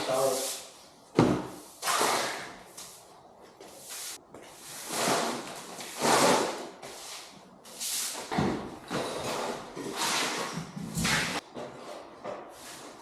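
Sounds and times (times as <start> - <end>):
thump: 1.2 - 1.5.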